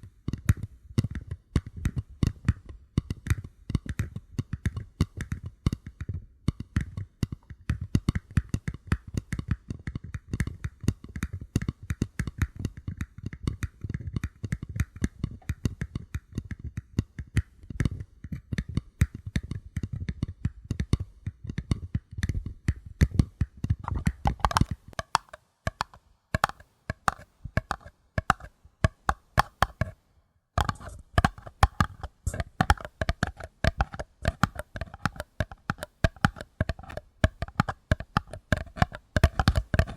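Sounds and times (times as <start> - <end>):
paper cups being tapped: 22.7 - 30.0, 30.6 - 39.9.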